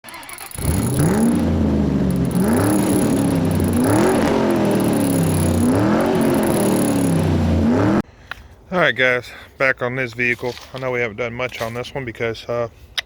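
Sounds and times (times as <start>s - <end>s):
car engine revving: 0.5s - 8.0s
steady low drone: 0.7s - 8.0s.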